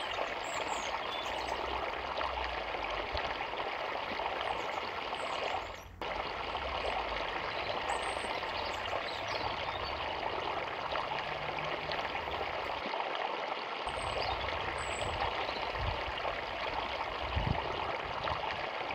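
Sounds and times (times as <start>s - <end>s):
river water flowing: 0.0s - 18.9s.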